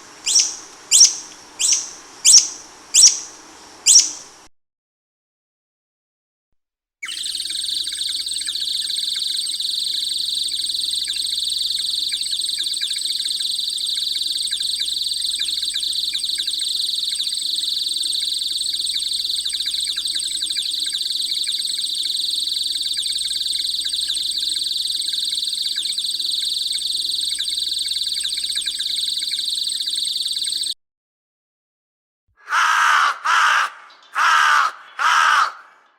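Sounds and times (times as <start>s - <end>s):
birds chirping: 0.0s - 4.4s, 32.4s - 35.9s.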